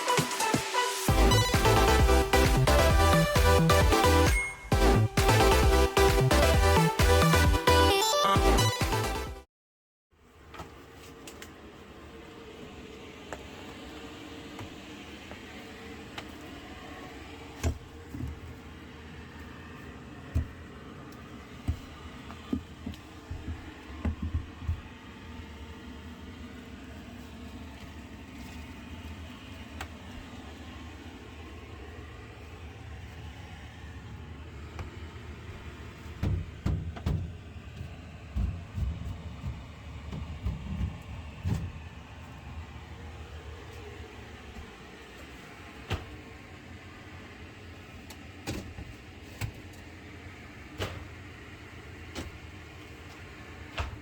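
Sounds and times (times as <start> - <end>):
machine hum: 10.2 - 54.0
dull knocks and thumps: 21.7 - 25.0, 36.1 - 42.0
demolition knocks and thuds: 36.2 - 37.5.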